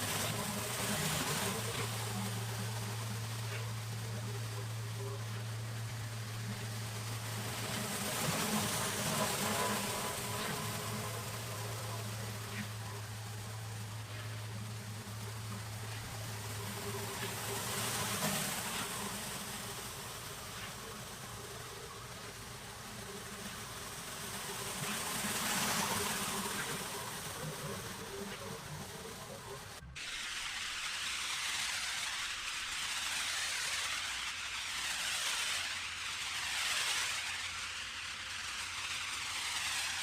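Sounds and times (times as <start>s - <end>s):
engine humming: 0.0s - 30.0s
pressure washer spraying concrete: 0.0s - 40.0s.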